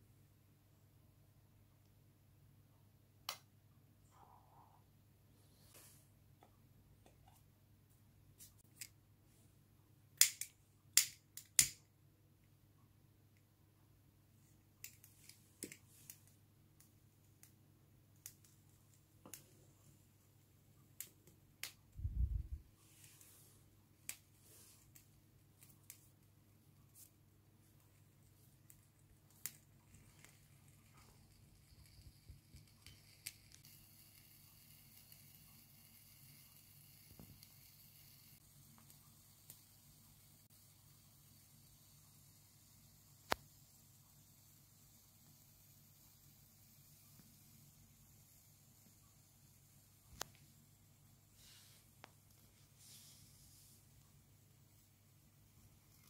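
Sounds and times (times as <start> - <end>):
lighter clicks: 10.2 - 11.8.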